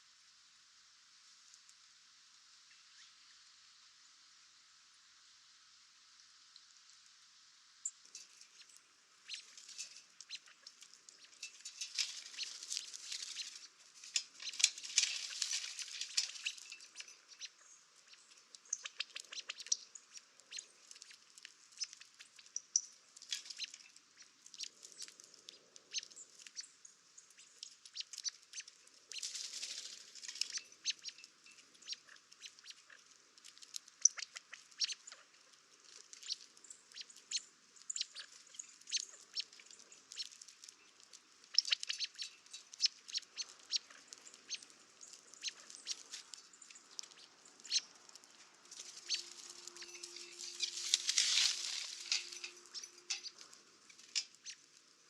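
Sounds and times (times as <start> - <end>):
rustling: 8.1 - 18.7, 27.4 - 34.0, 38.2 - 55.0
birds chirping: 8.6 - 21.2, 36.2 - 53.6.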